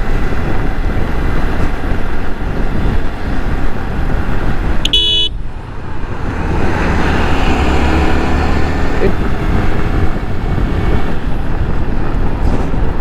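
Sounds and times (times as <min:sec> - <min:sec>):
motorcycle engine: 0:00.0 - 0:13.0
wind rushing on microphone: 0:00.0 - 0:13.0.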